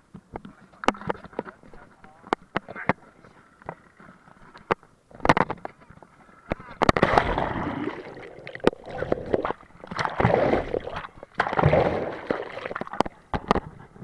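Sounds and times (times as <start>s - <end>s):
sea water splashing: 6.8s - 13.6s.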